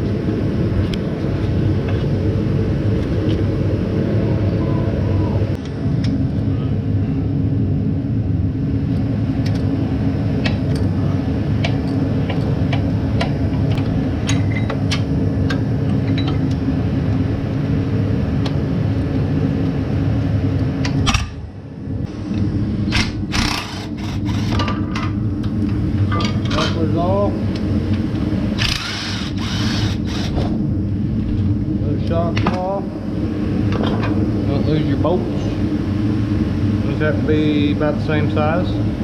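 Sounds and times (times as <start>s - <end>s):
low machine drone: 0.0s - 39.0s.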